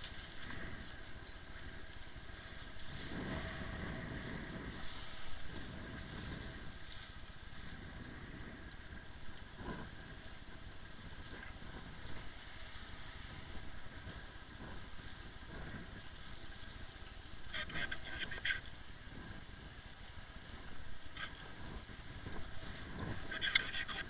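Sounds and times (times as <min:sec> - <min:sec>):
motorboat engine running: 0:00.0 - 0:17.8
continuous rushing noise: 0:00.0 - 0:24.0.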